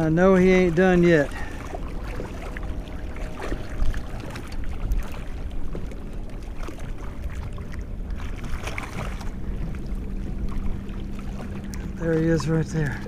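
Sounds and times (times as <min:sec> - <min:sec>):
water sloshing around boat: 0:00.0 - 0:13.0
wind rumble on microphone: 0:00.0 - 0:13.0.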